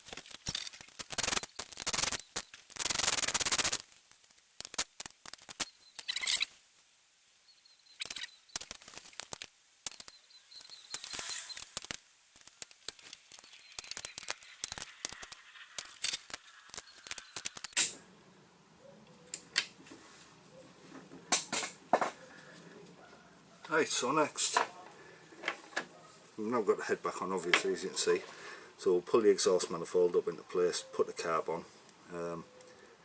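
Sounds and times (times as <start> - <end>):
ratchet wrench clicking: 0.0 - 3.9, 8.0 - 17.8.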